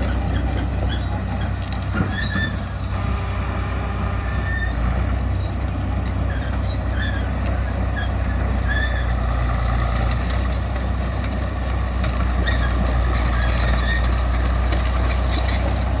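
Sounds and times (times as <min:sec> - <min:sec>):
bulldozer diesel engine running: 0:00.0 - 0:16.0
short high squeaks: 0:02.1 - 0:05.6.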